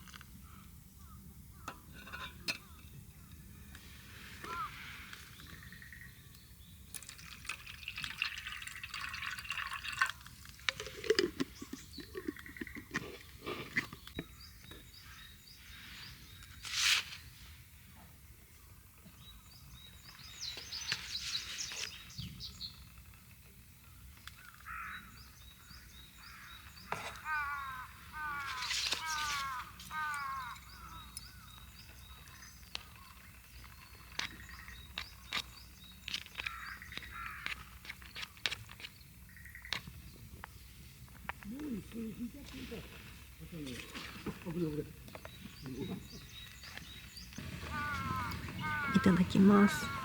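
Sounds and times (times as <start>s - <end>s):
liquid being poured: 6.9s - 12.8s.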